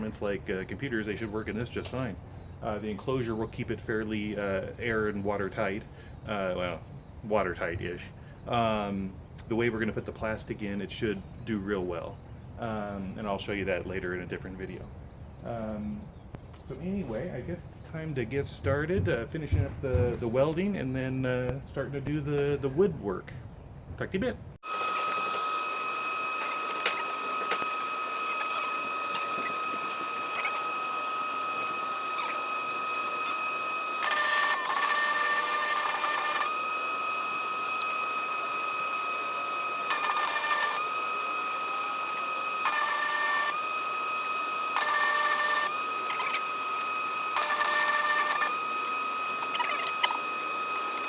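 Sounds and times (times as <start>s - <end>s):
welder high whine: 0.0s - 51.0s
crackling welding arc: 24.7s - 48.6s.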